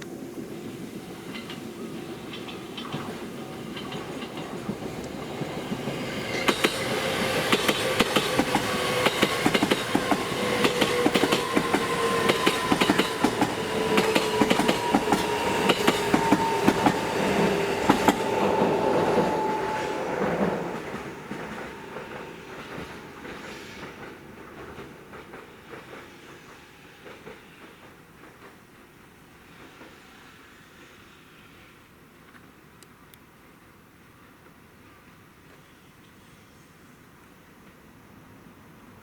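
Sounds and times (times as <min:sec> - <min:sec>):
train humming tone: 0:00.0 - 0:31.9
train wheels clacking over rail joints: 0:01.2 - 0:28.7.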